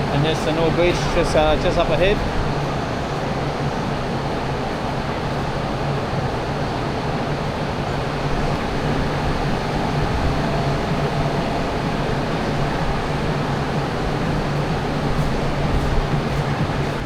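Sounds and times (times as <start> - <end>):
crowd noise: 0.0 - 2.3, 7.9 - 17.0
ventilation noise: 0.0 - 2.6, 7.6 - 17.0
constant low hum: 8.0 - 17.0.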